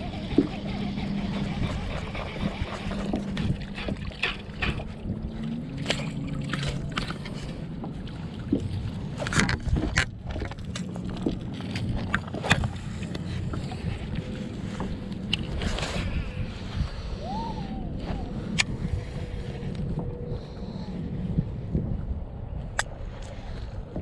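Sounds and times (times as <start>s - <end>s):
low steady hum: 0.0s - 24.0s
water: 0.0s - 24.0s
wind noise: 8.2s - 24.0s
fishing gear knocks and clicks: 9.2s - 13.6s.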